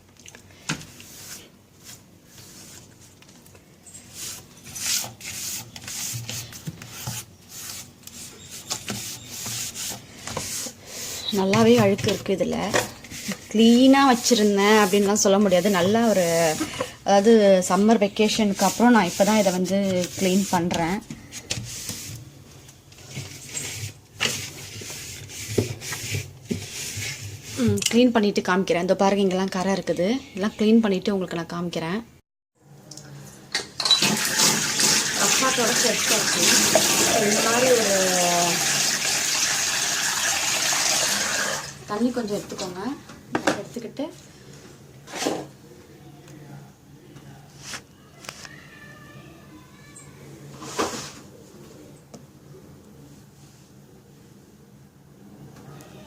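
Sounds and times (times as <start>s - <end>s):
cloth rubbing on refrigerator: 0.9s - 3.2s, 4.0s - 22.2s, 23.0s - 27.7s.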